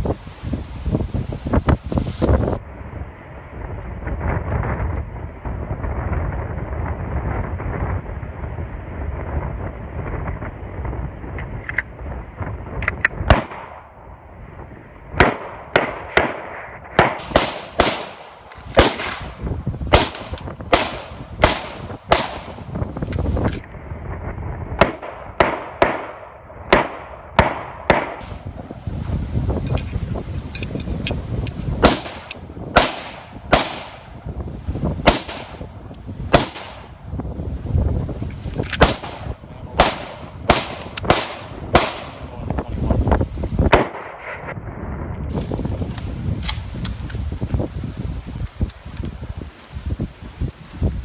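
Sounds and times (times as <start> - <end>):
wind noise on microphone: 0.0 - 51.0
pistol shots: 15.2 - 22.6, 24.8 - 28.4, 31.8 - 34.1, 35.0 - 35.6, 36.3 - 36.9, 38.8 - 42.3, 43.7 - 44.4.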